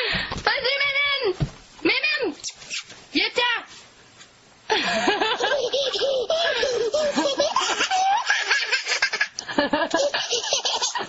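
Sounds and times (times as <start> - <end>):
people laughing: 4.7 - 11.0.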